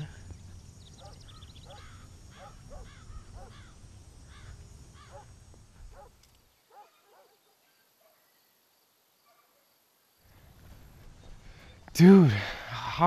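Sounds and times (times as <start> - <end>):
bird harsh calls: 0.0 - 7.6.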